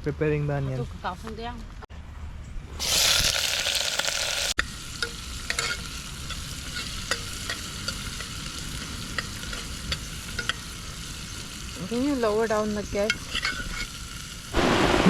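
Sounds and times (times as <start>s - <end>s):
onions sizzling in oil: 2.8s - 14.6s.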